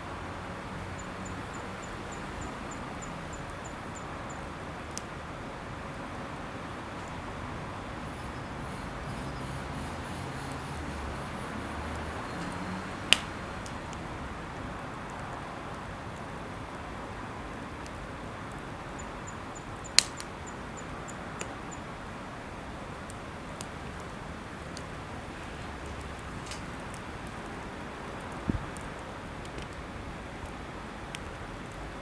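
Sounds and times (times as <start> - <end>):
faint fire crackles: 0.0 - 32.0
campfire hissing: 0.1 - 32.0
fire sharp pops: 10.6 - 16.0, 19.8 - 20.4, 22.8 - 31.8.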